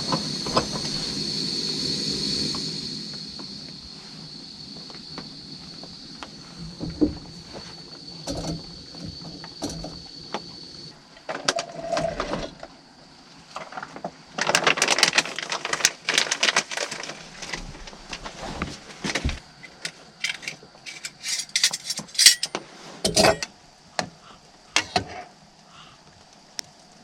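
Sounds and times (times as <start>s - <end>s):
camping gear clicking and rattling: 8.2s - 10.2s, 13.6s - 23.5s.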